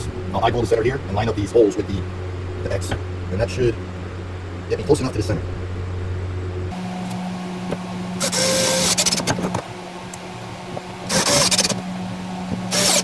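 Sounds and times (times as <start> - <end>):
steady hum: 0.0 - 13.0
drill running in bursts: 8.1 - 9.3, 11.1 - 11.9, 12.7 - 13.0.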